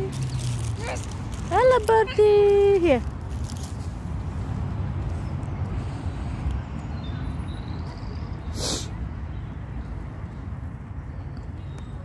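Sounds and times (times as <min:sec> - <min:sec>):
brief hiss: 0:08.5 - 0:08.9.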